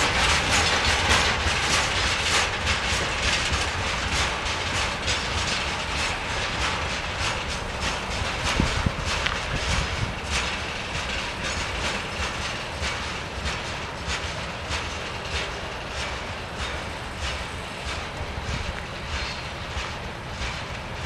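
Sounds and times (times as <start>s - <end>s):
train rumble: 0.0s - 21.0s
train wheels clacking over rail joints: 0.0s - 21.0s.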